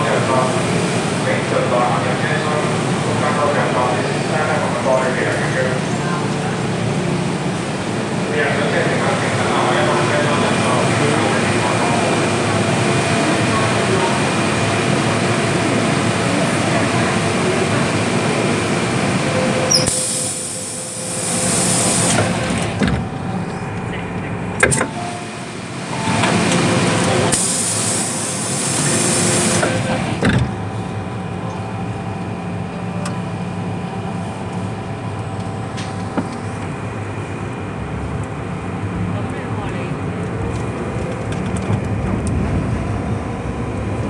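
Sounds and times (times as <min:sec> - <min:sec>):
train interior running noise: 0:00.0 - 0:44.0
air hissing: 0:19.7 - 0:22.2, 0:27.3 - 0:29.8.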